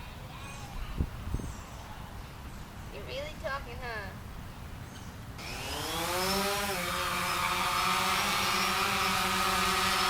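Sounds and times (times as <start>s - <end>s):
drone motors spinning: 5.4s - 10.0s.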